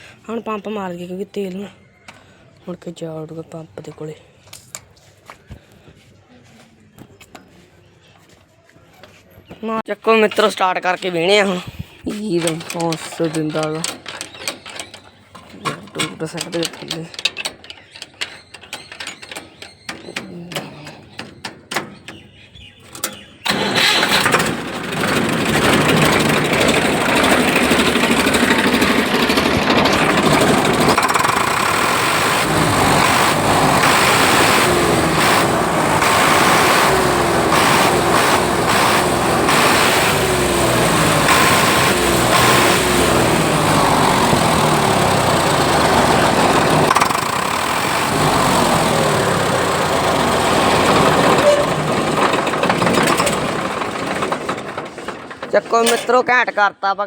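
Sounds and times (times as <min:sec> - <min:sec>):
diesel tractor engine revving: 0:23.4 - 0:55.5.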